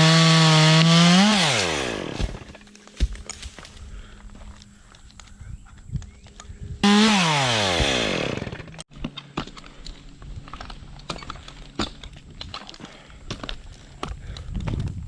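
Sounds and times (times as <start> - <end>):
chainsaw running: 0.0 - 3.6, 6.8 - 13.8.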